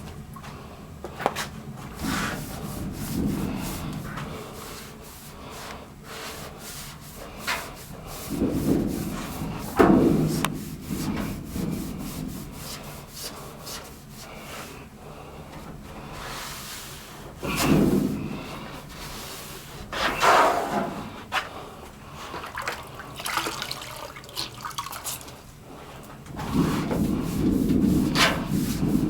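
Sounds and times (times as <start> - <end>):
scrubbing sheet metal: 6.3 - 14.7, 26.4 - 29.0.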